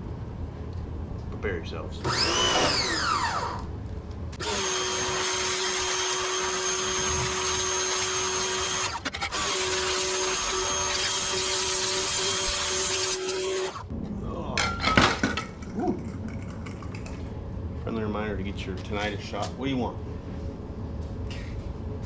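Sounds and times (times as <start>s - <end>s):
pressure washer motor whine: 2.0s - 3.6s, 4.4s - 13.9s.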